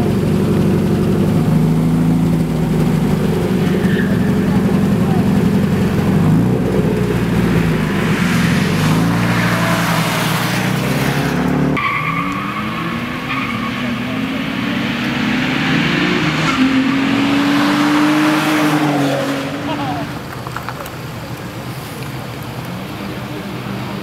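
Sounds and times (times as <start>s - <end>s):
race car engines revving: 0.0s - 24.0s
car accelerating hard: 1.1s - 20.3s.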